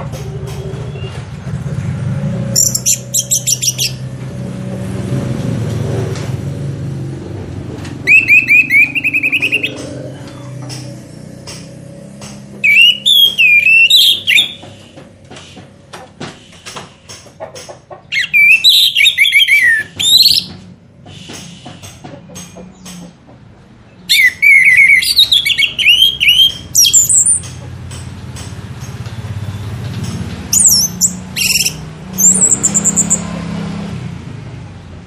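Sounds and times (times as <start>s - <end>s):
songbird whistling trills: 2.6s - 4.0s, 8.0s - 10.0s, 12.6s - 14.9s, 18.1s - 20.5s, 24.1s - 27.4s, 30.5s - 33.3s.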